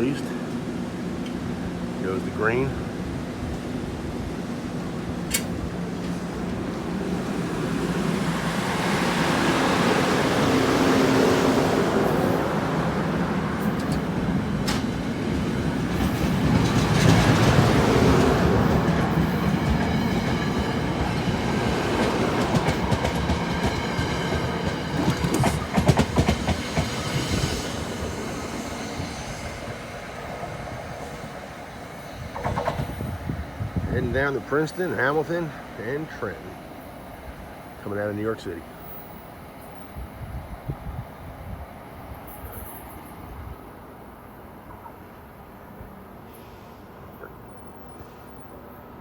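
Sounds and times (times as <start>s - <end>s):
train rumbling past: 0.0s - 49.0s
wheels clicking over rail joints: 13.6s - 27.0s.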